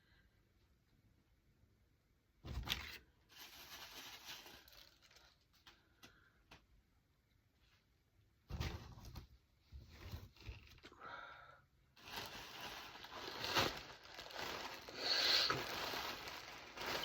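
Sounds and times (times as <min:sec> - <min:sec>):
plastic bags crinkling: 0:03.2 - 0:05.7, 0:12.0 - 0:17.0.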